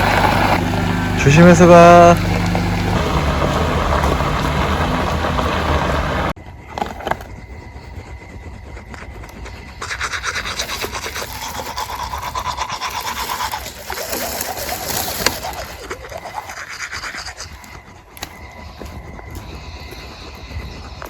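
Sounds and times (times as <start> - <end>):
rapid brushing strokes: 7.4 - 18.2.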